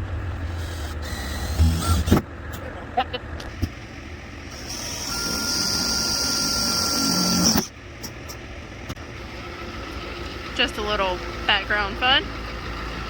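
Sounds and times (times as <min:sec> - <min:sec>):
electric drill boring sheet metal: 0:00.5 - 0:02.2, 0:04.5 - 0:07.7.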